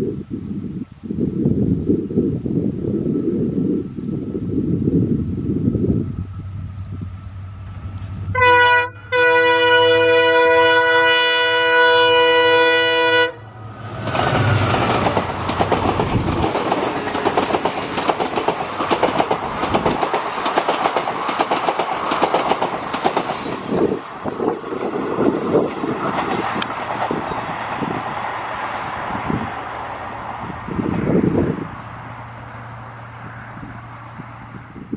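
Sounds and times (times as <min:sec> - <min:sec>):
locomotive engine drone: 0:01.7 - 0:20.0, 0:23.8 - 0:34.9
locomotive horn blasts: 0:08.3 - 0:13.6
train wheels clattering: 0:13.9 - 0:28.0.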